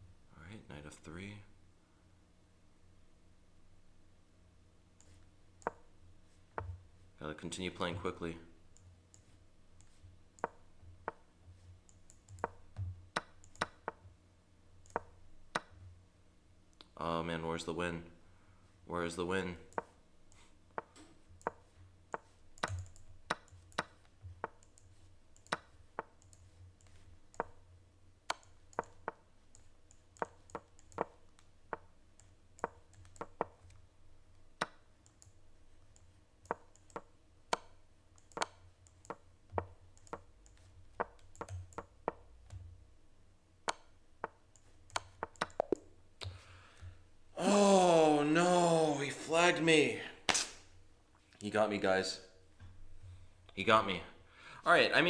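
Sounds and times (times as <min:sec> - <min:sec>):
sharp wooden chess move clicks: 0:09.8 - 0:11.3, 0:12.0 - 0:14.2, 0:14.8 - 0:15.8, 0:20.7 - 0:32.0, 0:32.6 - 0:33.8, 0:34.4 - 0:35.3, 0:36.5 - 0:42.7, 0:43.6 - 0:46.4, 0:50.3 - 0:50.6.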